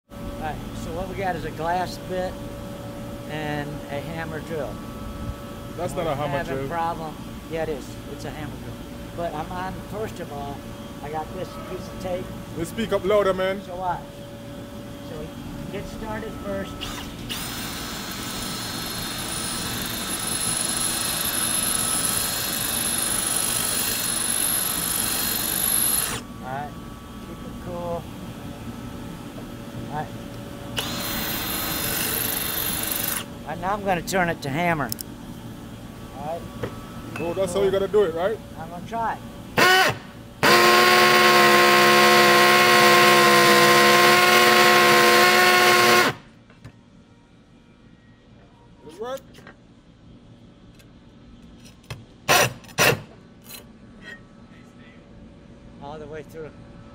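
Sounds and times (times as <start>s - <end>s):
hammer drill grinding into tile: 17.3s - 26.2s, 30.8s - 33.2s.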